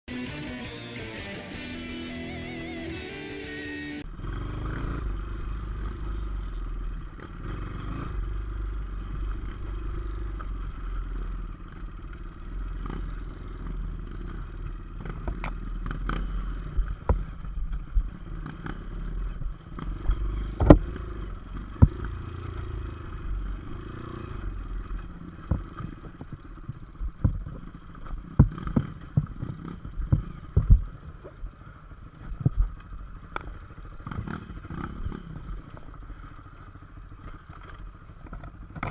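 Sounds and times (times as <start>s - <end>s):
motorcycle engine running: 0.1s - 38.9s
sharp knocks and clatters: 15.0s - 22.5s, 25.4s - 31.3s, 37.2s - 38.9s.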